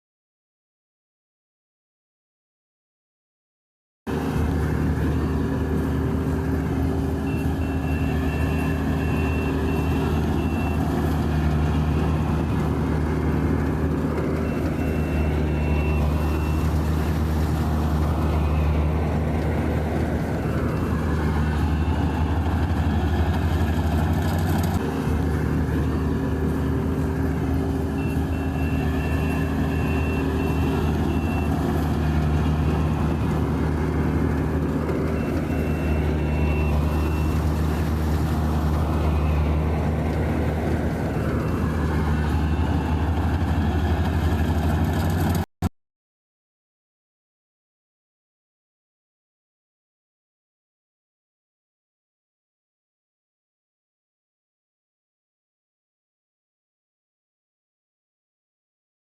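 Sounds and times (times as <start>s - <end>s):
combine harvester engine drone: 4.1s - 45.5s.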